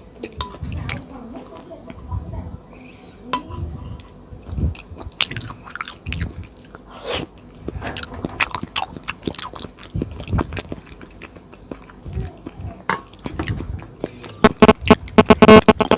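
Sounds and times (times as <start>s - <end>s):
chewing and biting food: 4.0s - 15.2s.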